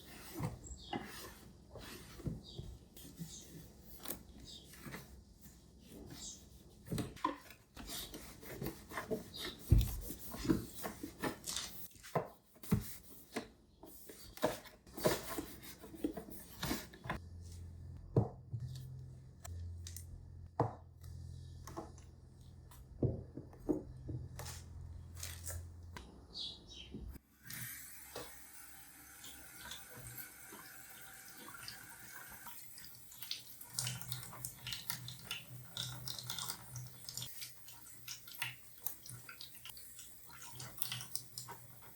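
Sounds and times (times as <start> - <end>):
water running at a sink: 27.3 - 41.9.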